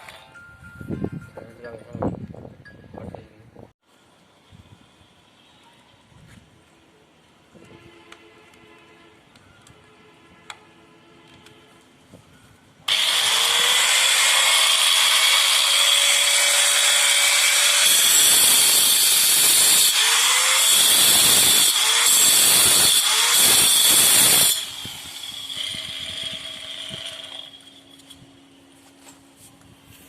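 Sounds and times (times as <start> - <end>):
grinder motor whining: 12.9 - 28.3.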